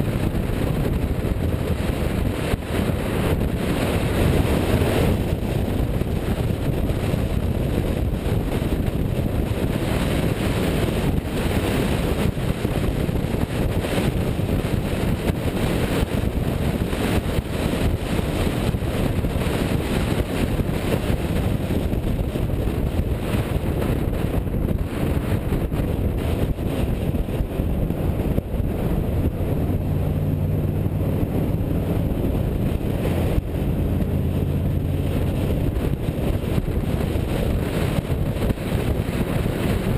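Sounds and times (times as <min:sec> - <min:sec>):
wind rush on microphone: 0:00.0 - 0:39.9
car engine humming: 0:13.8 - 0:39.9.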